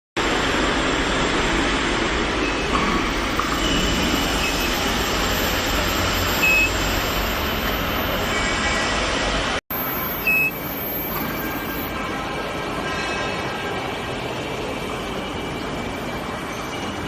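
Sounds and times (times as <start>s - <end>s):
low machinery hum: 0.2s - 12.9s
faint high tones: 9.7s - 12.0s.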